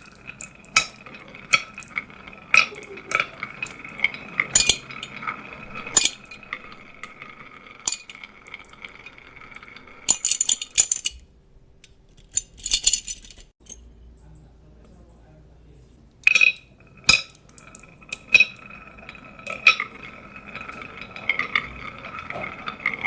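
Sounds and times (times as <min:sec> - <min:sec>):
marbles clattering together: 0:00.0 - 0:11.2, 0:16.3 - 0:23.0
marbles rolling on wooden track: 0:00.0 - 0:11.3, 0:16.3 - 0:23.0.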